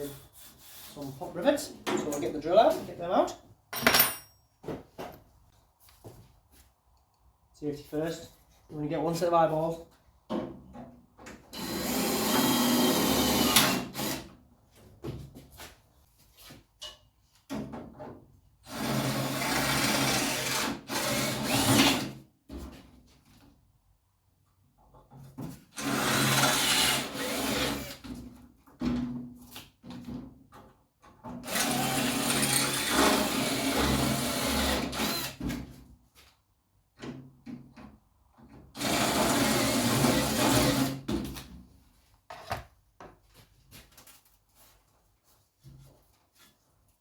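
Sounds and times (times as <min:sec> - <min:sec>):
electric drill drilling metal: 0:11.6 - 0:14.2, 0:25.8 - 0:27.8, 0:31.5 - 0:35.4.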